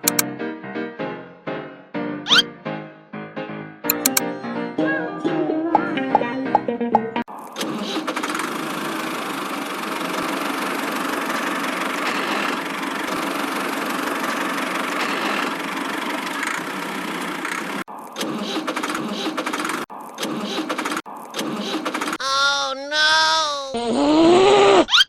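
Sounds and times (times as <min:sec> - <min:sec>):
rattly fast-ticking engine: 0:07.6 - 0:17.9
engine running steadily: 0:08.0 - 0:17.9.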